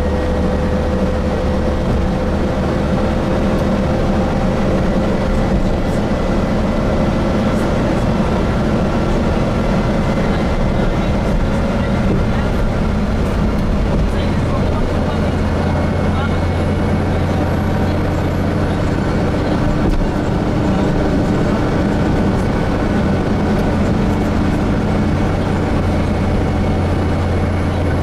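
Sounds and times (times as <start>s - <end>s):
bus engine hum: 0.0s - 28.0s
road noise: 0.0s - 28.0s.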